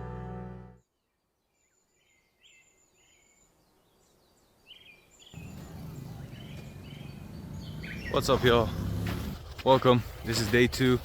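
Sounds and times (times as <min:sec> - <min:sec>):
background music: 0:00.0 - 0:00.8
birds chirping and whistling: 0:04.3 - 0:09.4.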